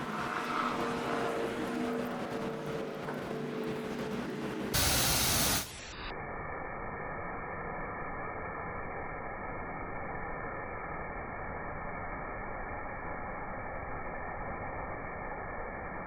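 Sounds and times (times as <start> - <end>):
high-pressure water spray hissing: 4.7 - 6.1.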